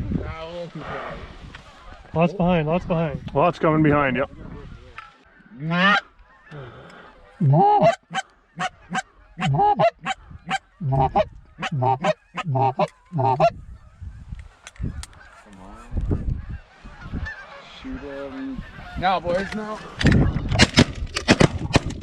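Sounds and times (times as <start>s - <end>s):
goose honking: 5.6s - 6.0s, 7.4s - 13.5s.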